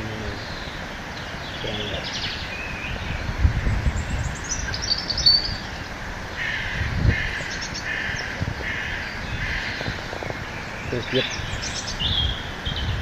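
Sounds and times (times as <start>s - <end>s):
birds chirping and trilling: 0.0s - 13.0s
harsh caw-like bird calls: 4.4s - 13.0s.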